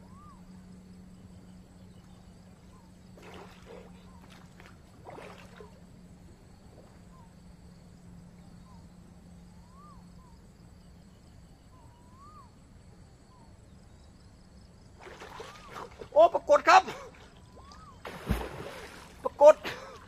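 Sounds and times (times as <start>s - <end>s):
bird whistled calls: 0.0s - 0.5s, 9.6s - 10.4s, 11.7s - 12.6s, 17.4s - 18.1s
steady low hum: 0.0s - 20.0s.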